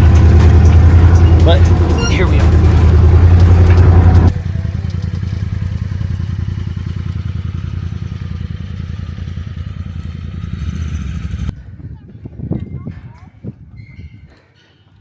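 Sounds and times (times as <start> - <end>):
pickup engine rumbling at low revs: 0.0 - 11.8.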